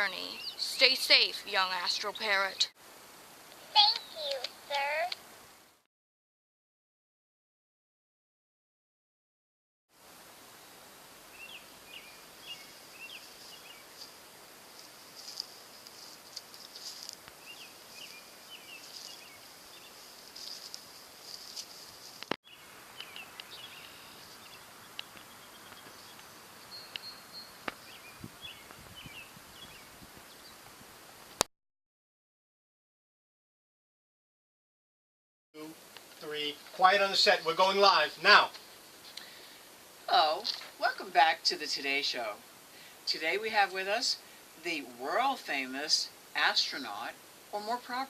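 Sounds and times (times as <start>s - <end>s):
small birds chirping: 0.0s - 2.8s, 3.5s - 5.2s, 10.6s - 30.8s
high insect drone: 10.0s - 29.8s.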